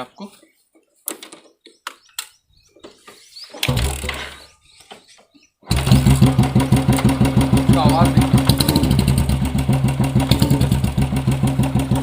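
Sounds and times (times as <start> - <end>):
motorcycle engine idling loudly: 5.7 - 12.0.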